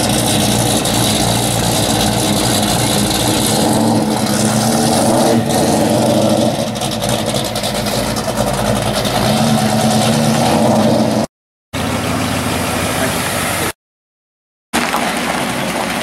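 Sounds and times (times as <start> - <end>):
car engine rumbling through exhaust: 0.0 - 13.7.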